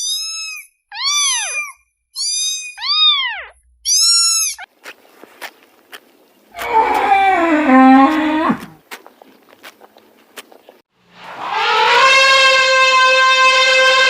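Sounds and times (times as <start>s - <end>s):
kitten meowing: 0.0s - 4.7s
cow mooing: 6.6s - 8.8s, 11.3s - 14.0s.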